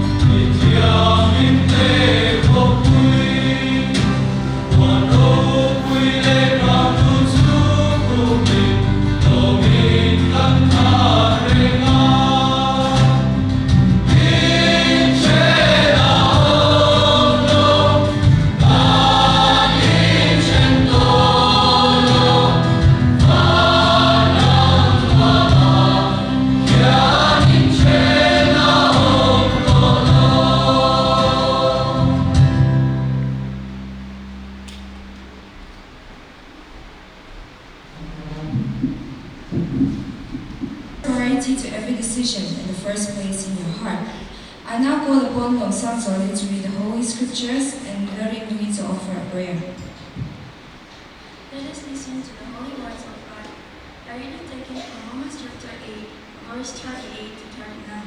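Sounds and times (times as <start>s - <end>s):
group singing a hymn: 0.0s - 33.8s
instrumental accompaniment: 0.0s - 35.8s.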